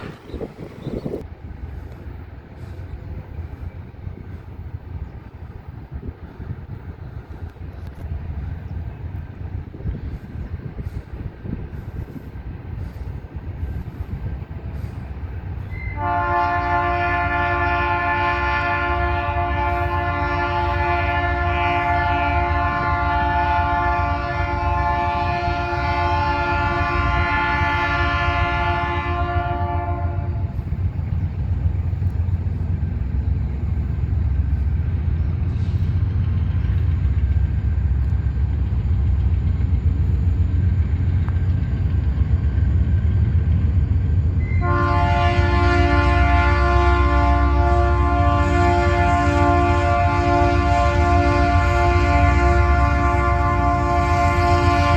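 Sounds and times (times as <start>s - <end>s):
low diesel engine rumble: 0.0s - 54.9s
locomotive air horn chord: 15.7s - 30.6s, 44.4s - 54.9s.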